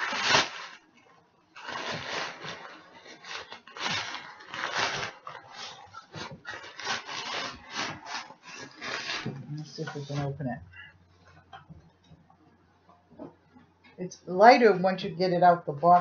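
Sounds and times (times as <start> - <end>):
rustling and scraping: 0.0 - 12.3.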